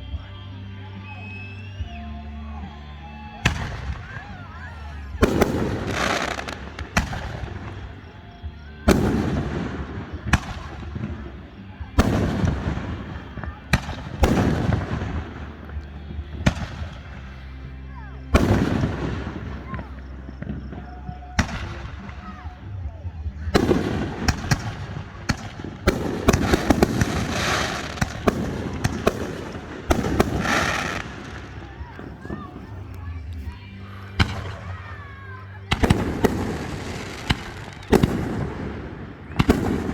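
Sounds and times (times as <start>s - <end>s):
fireworks booming: 3.4s - 8.3s, 8.9s - 17.5s, 18.3s - 22.8s, 23.4s - 39.9s
sharp firework cracks: 5.2s - 8.0s, 8.9s - 11.2s, 12.0s - 15.8s, 18.4s - 20.7s, 23.6s - 35.0s, 35.7s - 39.9s.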